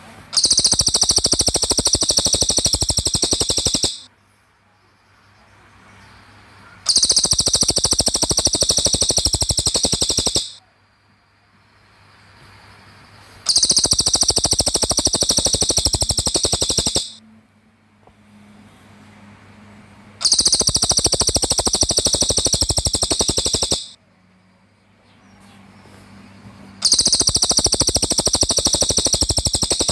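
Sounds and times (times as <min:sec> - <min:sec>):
songbird trilling: 0:00.4 - 0:04.1, 0:06.9 - 0:10.6, 0:13.5 - 0:17.2, 0:20.2 - 0:24.0, 0:26.8 - 0:29.9.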